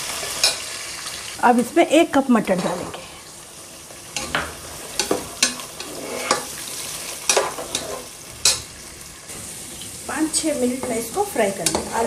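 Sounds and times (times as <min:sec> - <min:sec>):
vegetables sizzling in hot oil: 0:00.0 - 0:12.0
ladle scraping and knocking pot: 0:04.2 - 0:06.5.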